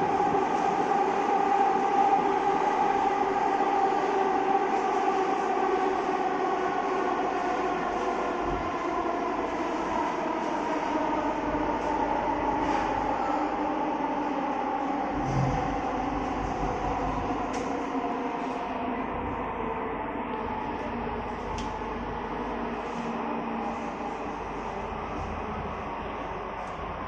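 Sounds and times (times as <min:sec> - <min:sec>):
rail rumble: 0:00.0 - 0:27.0.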